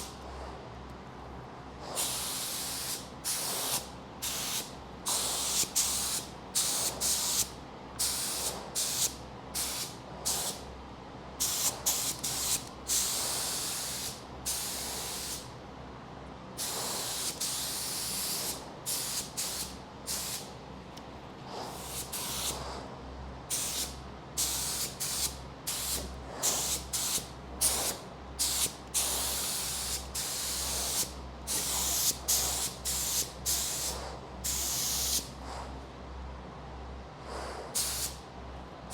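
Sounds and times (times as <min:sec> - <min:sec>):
steady low hum: 0:00.0 - 0:38.9
spray gun hissing: 0:02.0 - 0:10.6, 0:11.4 - 0:15.5, 0:16.6 - 0:20.5, 0:23.5 - 0:35.2, 0:37.8 - 0:38.2.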